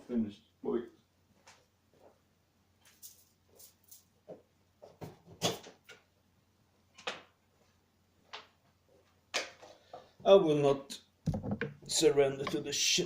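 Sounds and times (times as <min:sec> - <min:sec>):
objects clicking and knocking: 0:11.3 - 0:12.7.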